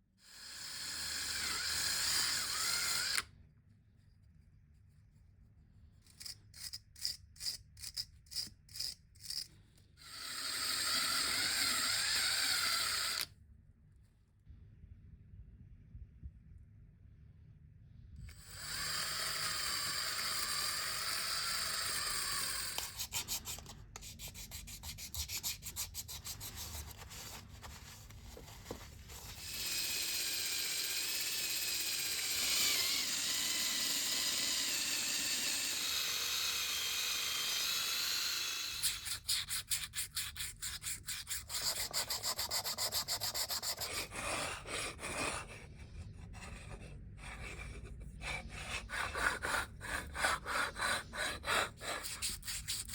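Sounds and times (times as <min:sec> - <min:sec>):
small power tool running: 0:00.2 - 0:03.3, 0:10.0 - 0:13.3, 0:18.3 - 0:23.6, 0:29.0 - 0:39.2
rhythmic hand sanding strokes: 0:38.8 - 0:44.1.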